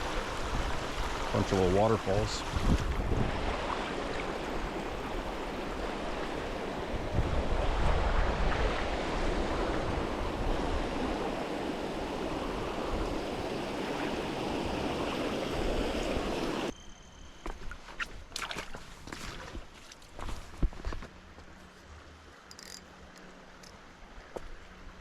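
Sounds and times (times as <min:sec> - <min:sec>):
water rushing over waterfalls: 0:00.0 - 0:07.1, 0:08.7 - 0:16.7
wind buffeting microphone: 0:02.1 - 0:03.7, 0:04.4 - 0:16.7.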